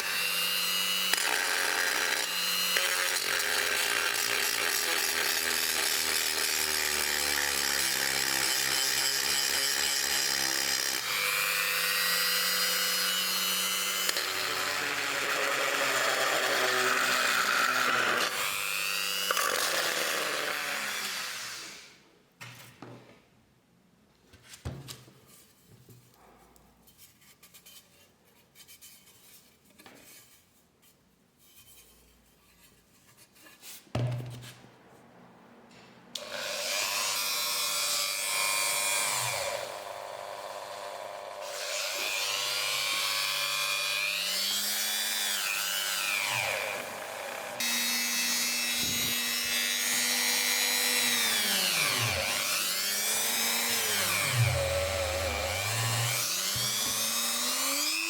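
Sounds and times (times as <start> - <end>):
small electric power tool whining: 0.0 - 22.0, 36.2 - 58.0
faint rubbing and handling: 24.1 - 35.1.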